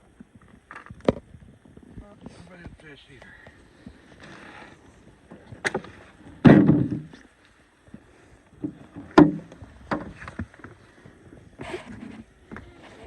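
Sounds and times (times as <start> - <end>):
heavy thud: 6.4 - 7.2.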